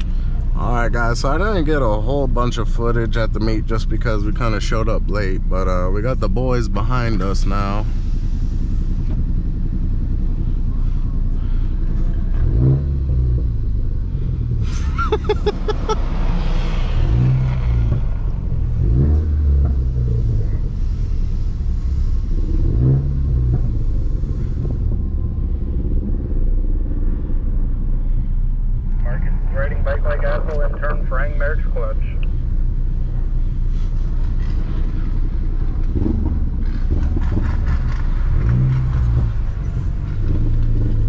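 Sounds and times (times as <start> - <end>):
car engine accelerating: 0.0 - 41.0
road rumble: 0.0 - 41.0.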